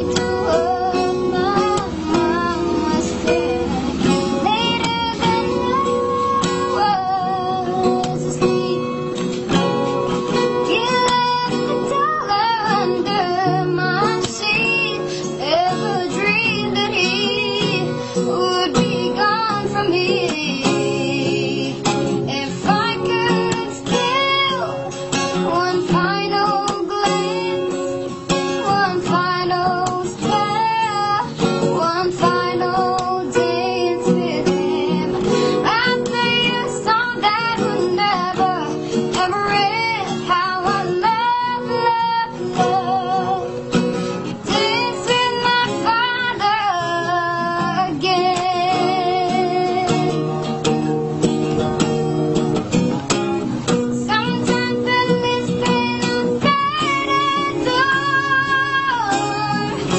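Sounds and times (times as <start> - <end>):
child singing: 0.0 - 9.1, 10.6 - 27.7, 28.6 - 43.5, 44.4 - 50.2, 54.0 - 59.9
acoustic guitar: 0.0 - 59.9.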